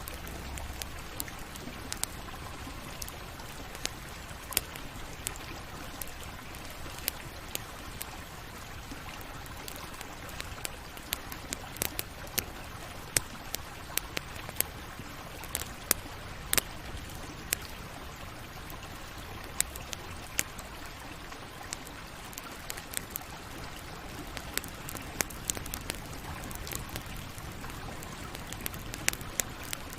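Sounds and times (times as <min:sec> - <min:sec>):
fire crackles and pops: 0:00.0 - 0:29.9
campfire flame rushing: 0:22.7 - 0:29.9.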